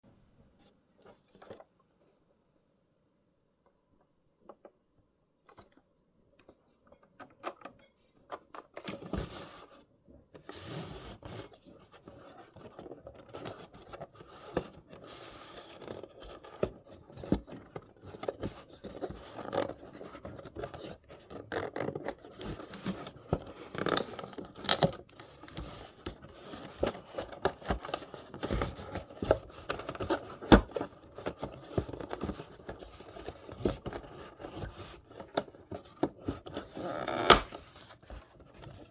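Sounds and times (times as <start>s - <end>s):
hands scraping and rubbing packaging: 10.4s - 38.9s
sharp clicks of packaging: 23.7s - 25.8s.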